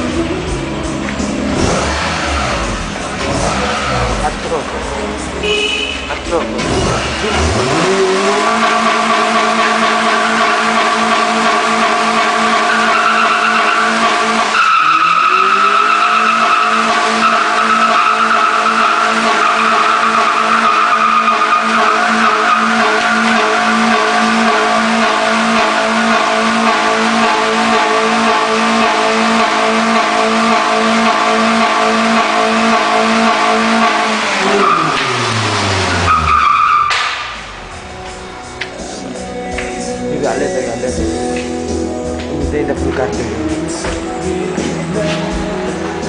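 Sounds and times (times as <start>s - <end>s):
car engine at high revs: 0.0s - 39.2s
tyres squealing: 5.9s - 37.1s.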